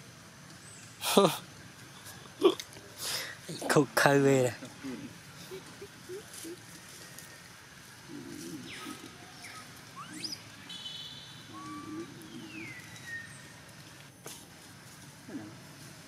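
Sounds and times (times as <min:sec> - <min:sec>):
faint low voice murmurs: 0:08.0 - 0:09.8, 0:15.2 - 0:15.8
buzzy bird trill: 0:08.3 - 0:13.6
bird whistle calls: 0:08.6 - 0:13.6.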